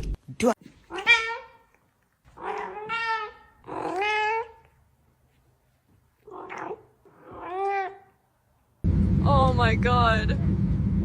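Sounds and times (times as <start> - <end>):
cat meowing: 0.9 - 4.8, 6.2 - 8.2.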